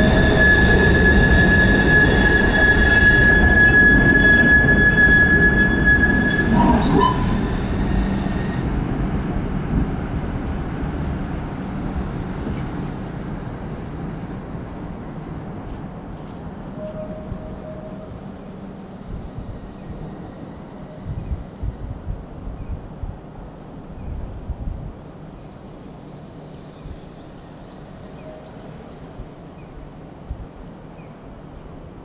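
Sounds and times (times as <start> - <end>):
train wheel squeal: 0.0 - 10.9, 16.8 - 18.4
train rumble: 0.0 - 25.6.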